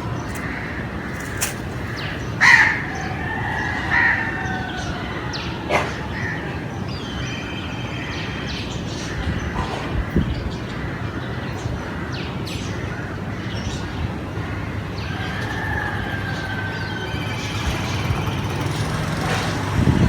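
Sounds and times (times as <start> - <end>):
small birds chirping: 0.0 - 6.2, 13.6 - 20.0
steady background noise: 0.0 - 20.0
rooster crowing: 0.3 - 5.6, 15.0 - 19.2.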